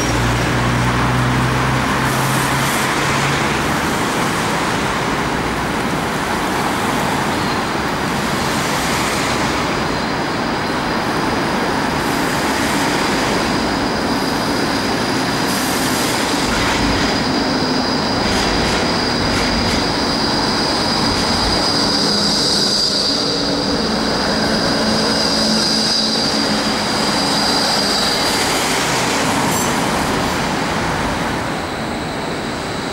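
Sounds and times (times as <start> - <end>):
tram rolling: 0.0 - 32.9
high-pitched squeal: 15.5 - 32.9.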